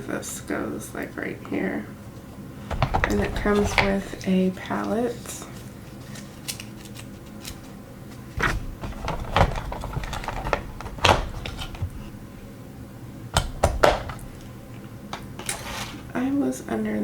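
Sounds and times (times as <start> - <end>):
plastic packaging clicks and knocks: 2.7 - 4.3, 8.4 - 12.2, 13.4 - 14.6
plastic rustling: 2.7 - 12.5, 13.4 - 14.8.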